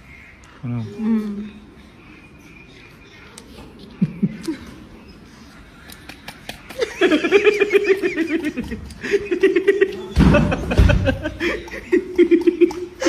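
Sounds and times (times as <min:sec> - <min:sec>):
person laughing: 0:06.8 - 0:13.0.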